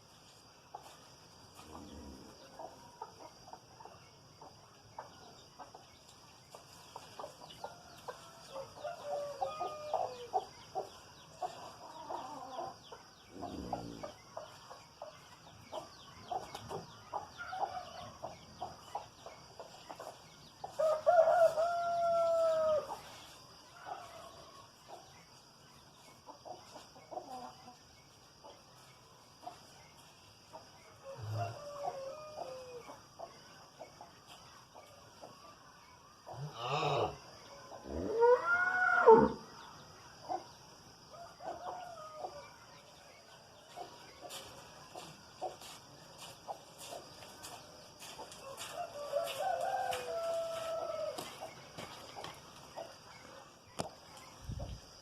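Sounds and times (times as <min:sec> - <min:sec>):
chickens clucking: 0:01.7 - 0:20.8, 0:22.0 - 0:36.6, 0:43.6 - 0:55.0
rooster crowing: 0:07.7 - 0:10.4, 0:20.8 - 0:22.9, 0:31.0 - 0:32.8, 0:36.4 - 0:39.5, 0:48.4 - 0:51.4.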